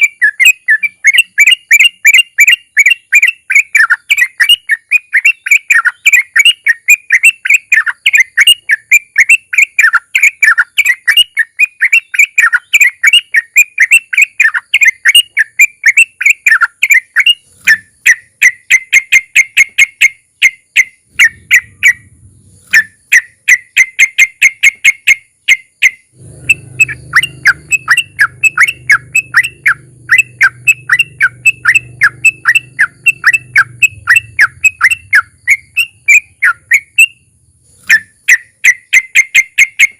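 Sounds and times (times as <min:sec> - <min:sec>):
bird singing rolling song: 0:00.0 - 0:39.9
faint low hum: 0:21.0 - 0:23.4, 0:26.1 - 0:38.2.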